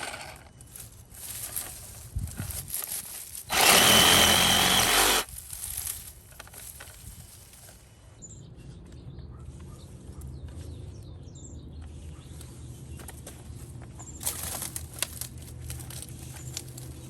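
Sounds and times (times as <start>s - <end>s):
handling noises: 0.0s - 7.9s
reciprocating saw running: 3.5s - 5.3s.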